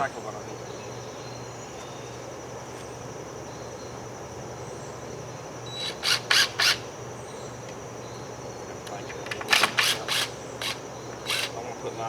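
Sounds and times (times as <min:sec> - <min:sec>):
high insect drone: 0:00.0 - 0:12.0
harsh tool bursts: 0:05.8 - 0:06.9, 0:09.3 - 0:11.6.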